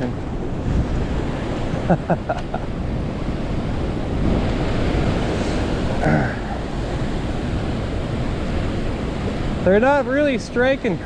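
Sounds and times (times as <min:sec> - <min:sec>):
wind buffeting microphone: 0:00.0 - 0:11.0
waves washing against rocks: 0:02.9 - 0:11.0.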